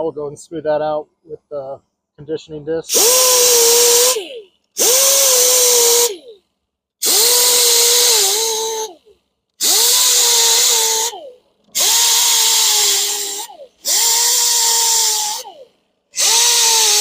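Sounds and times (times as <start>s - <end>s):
power tool whining: 2.9s - 6.3s, 7.0s - 17.0s.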